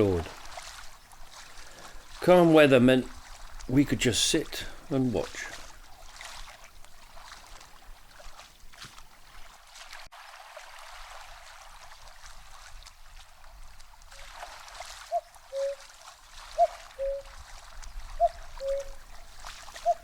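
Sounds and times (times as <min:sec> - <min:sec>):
running water: 0:00.0 - 0:20.0
cuckoo calling: 0:15.1 - 0:15.9, 0:16.5 - 0:19.1, 0:19.7 - 0:20.0.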